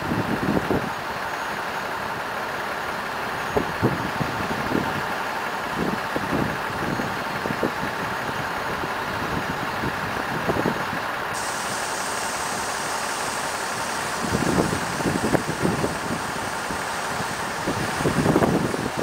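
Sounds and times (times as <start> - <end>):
passenger train rolling past: 0.0 - 19.0
low thumps of train: 12.2 - 19.0.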